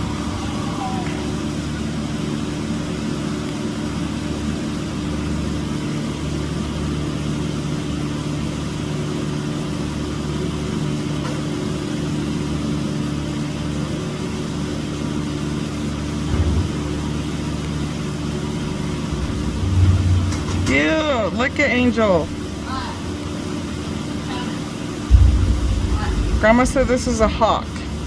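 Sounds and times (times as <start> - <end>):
car engine idling: 14.8 - 28.0
low thump: 18.6 - 21.4, 25.1 - 28.0.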